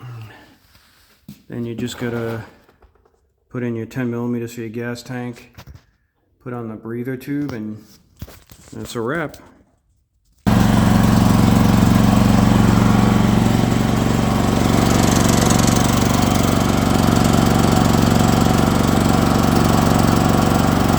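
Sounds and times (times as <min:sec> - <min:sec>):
generator engine running: 0:10.5 - 0:20.9.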